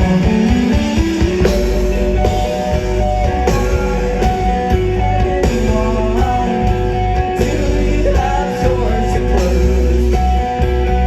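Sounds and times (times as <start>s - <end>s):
drum kit hits: 0.0s - 8.6s
bass guitar: 0.0s - 11.0s
electric guitars: 0.0s - 11.0s.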